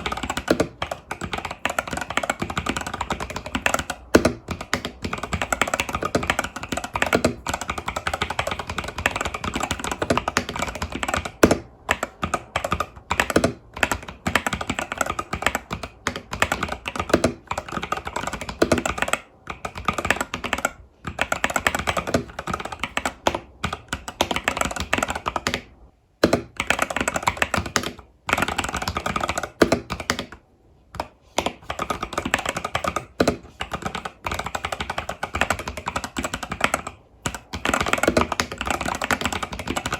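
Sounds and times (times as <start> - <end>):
mechanical keyboard keystroke clacks: 0.0 - 30.4, 31.0 - 39.9.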